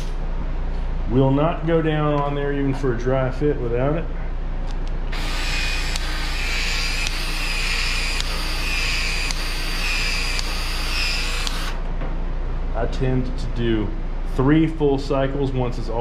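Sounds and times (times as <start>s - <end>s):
pipe expansion tool motor whine: 5.1s - 12.0s.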